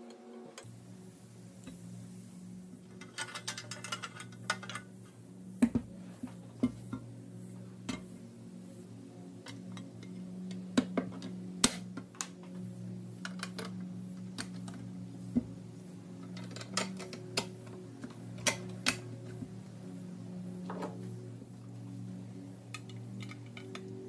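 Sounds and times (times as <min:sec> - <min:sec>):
steady low hum: 0:00.0 - 0:24.0
toy metal parts clicking: 0:03.0 - 0:04.9, 0:16.3 - 0:17.5, 0:22.7 - 0:23.9.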